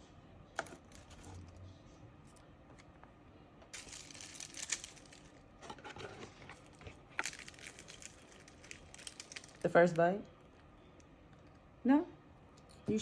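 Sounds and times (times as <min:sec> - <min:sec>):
rustling: 0:03.8 - 0:09.8.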